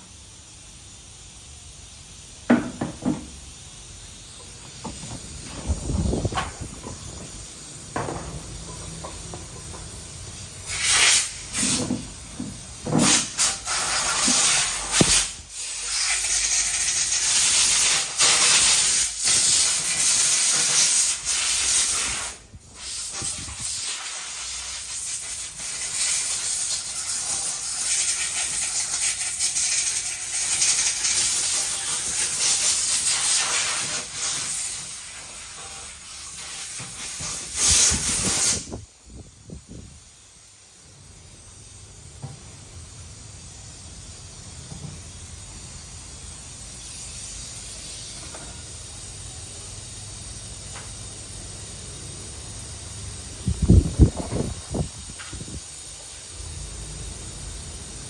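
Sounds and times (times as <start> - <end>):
high-pressure jet hissing: 0.0 - 39.9.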